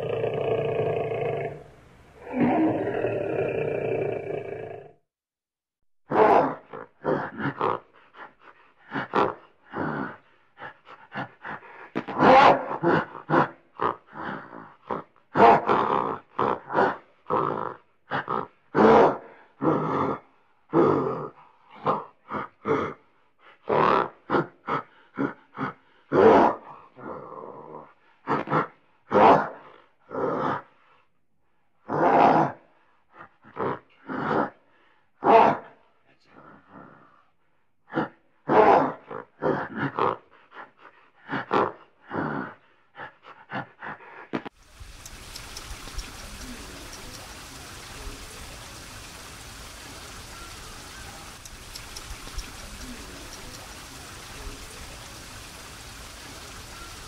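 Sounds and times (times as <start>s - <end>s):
gorilla grunting: 0.0s - 5.0s, 6.1s - 8.3s, 8.9s - 10.3s, 11.1s - 23.0s, 23.7s - 30.7s, 33.2s - 34.6s, 37.9s - 40.2s, 41.2s - 56.8s
rushing water or wind: 44.6s - 57.0s.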